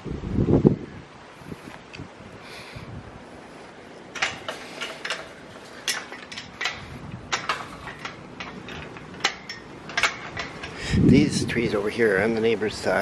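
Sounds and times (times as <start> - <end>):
faint hiss: 0.4 - 7.2.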